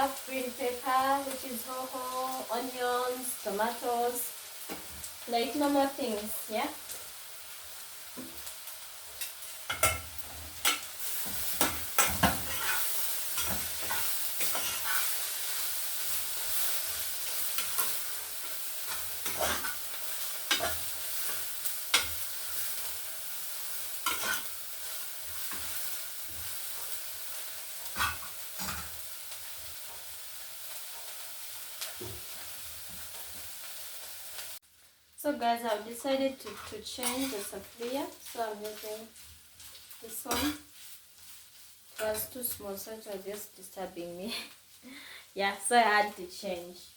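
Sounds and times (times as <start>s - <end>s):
small fish sizzling in a saucepan: 0.0s - 46.9s
spoon knocking and scraping pan: 9.2s - 15.2s, 17.2s - 19.8s, 20.4s - 22.2s, 24.0s - 24.5s, 27.8s - 29.0s, 36.4s - 40.6s.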